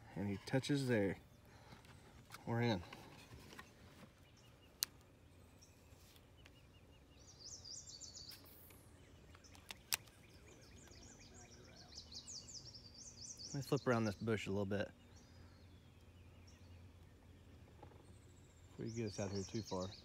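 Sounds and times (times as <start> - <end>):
small birds chirping: 0.0 - 20.0
sharp clicks: 8.5 - 10.3.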